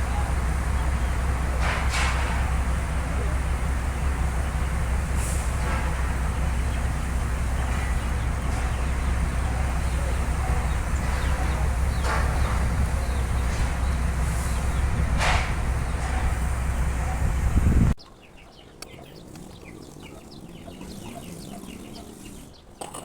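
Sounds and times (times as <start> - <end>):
low engine hum: 0.0 - 18.0
faint voices: 0.0 - 23.0.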